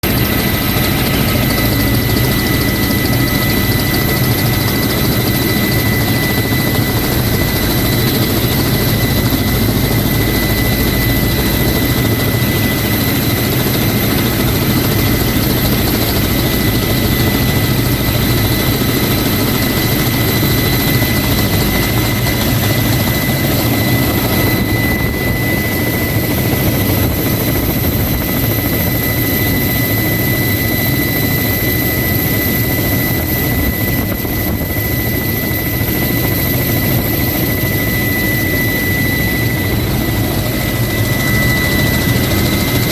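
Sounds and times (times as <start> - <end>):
high whine: 0.0 - 7.6
helicopter rotor and engine: 0.0 - 42.9.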